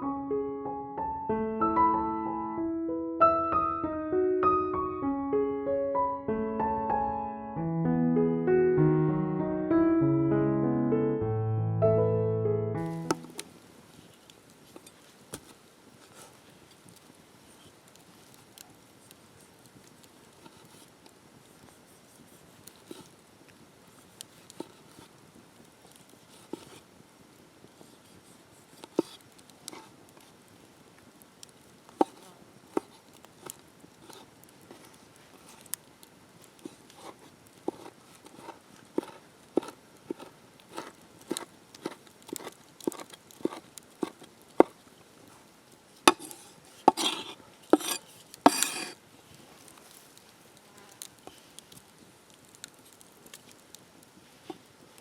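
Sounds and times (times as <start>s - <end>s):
short scraping rustles: 46.1s - 49.0s.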